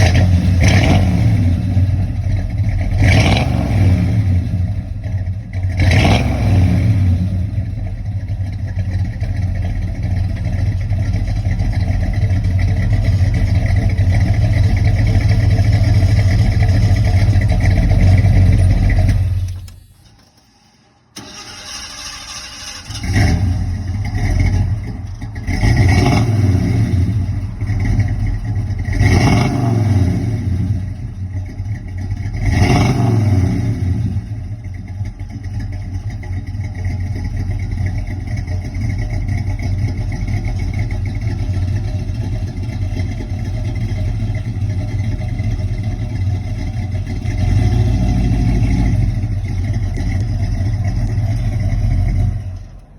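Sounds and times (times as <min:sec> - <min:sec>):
vee eight engine revving and idling: 0:00.0 - 0:19.8, 0:21.2 - 0:52.9.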